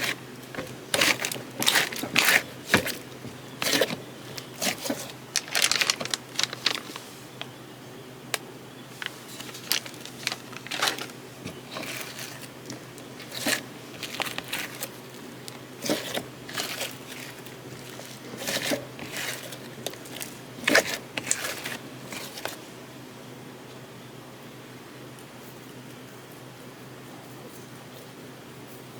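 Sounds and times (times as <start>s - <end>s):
slime squishing wet crackles: 0.0s - 7.5s, 8.4s - 22.6s.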